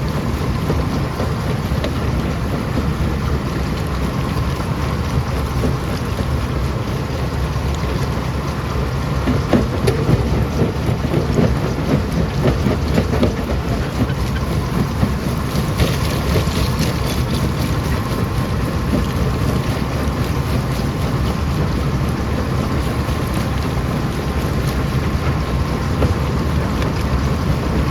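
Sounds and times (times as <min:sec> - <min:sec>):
stone crusher rumbling: 0:09.2 - 0:27.9.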